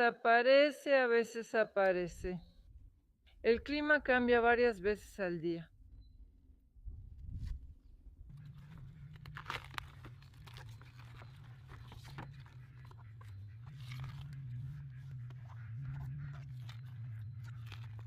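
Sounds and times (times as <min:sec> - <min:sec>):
steady low hum: 0:02.0 - 0:18.0
vegetables crunching and tearing: 0:08.4 - 0:14.8, 0:15.8 - 0:18.0.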